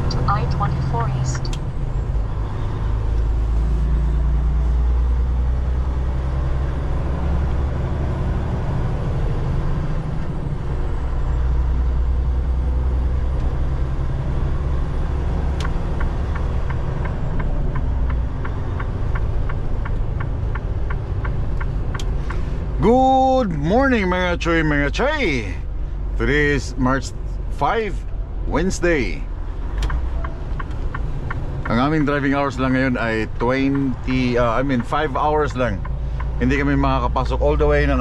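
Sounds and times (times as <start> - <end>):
truck engine and road rumble: 0.0 - 38.0
turn signal ticking: 12.9 - 26.2, 29.2 - 38.0.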